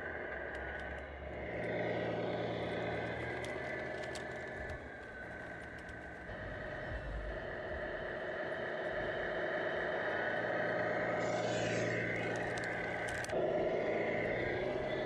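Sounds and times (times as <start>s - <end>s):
toy truck motor drone: 0.0s - 15.0s
light clicks: 2.6s - 6.3s, 11.3s - 13.4s.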